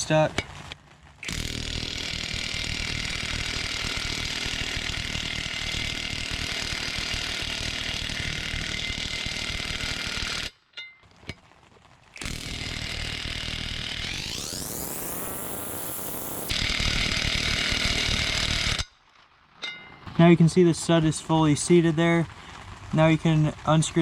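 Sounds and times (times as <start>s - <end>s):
impact wrench hammering: 1.2s - 5.0s, 12.2s - 15.6s.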